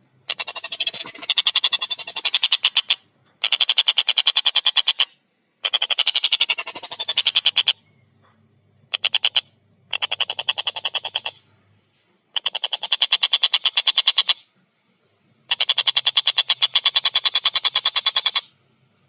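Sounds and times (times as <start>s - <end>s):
kingfisher chattering calls: 0.3s - 7.8s, 8.9s - 11.4s, 12.3s - 14.4s, 15.5s - 18.5s.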